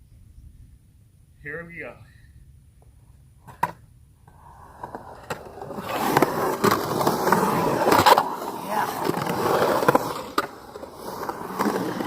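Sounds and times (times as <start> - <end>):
skateboard wheels rolling: 3.4 - 12.0.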